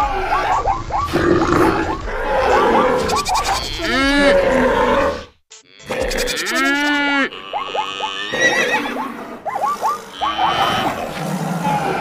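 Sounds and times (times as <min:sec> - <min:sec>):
short repeated animal calls: 0:05.7 - 0:12.0
long rising and falling animal call: 0:05.9 - 0:12.0.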